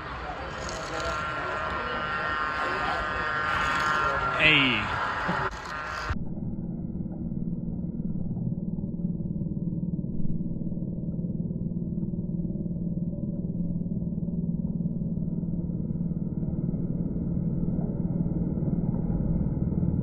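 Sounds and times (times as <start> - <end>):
model train rumbling on track: 0.0 - 6.2.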